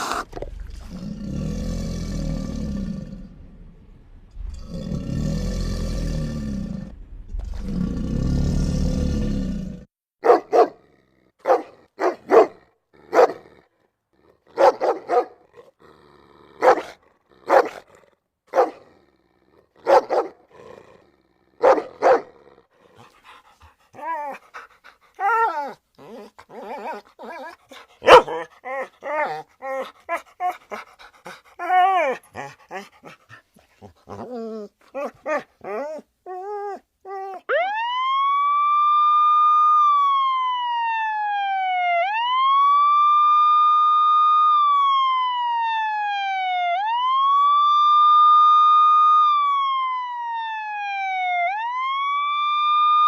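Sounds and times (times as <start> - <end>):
rough roars: 0.0 - 9.9
dog barking: 10.2 - 10.8, 11.4 - 13.5, 14.5 - 15.4, 16.6 - 17.8, 18.5 - 18.9, 19.8 - 20.4, 21.6 - 22.4, 26.6 - 29.4
dog yipping and whining: 24.0 - 24.6, 25.2 - 30.8, 31.6 - 33.2, 33.8 - 37.5.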